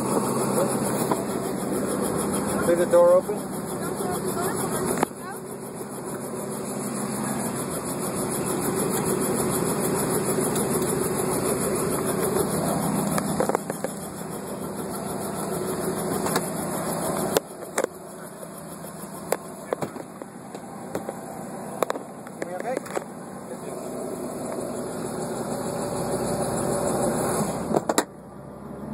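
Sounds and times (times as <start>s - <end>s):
engine running: 0.0s - 28.9s
sharp clicks and knocks: 11.9s - 14.1s, 16.2s - 18.0s, 19.2s - 21.2s, 21.8s - 23.1s.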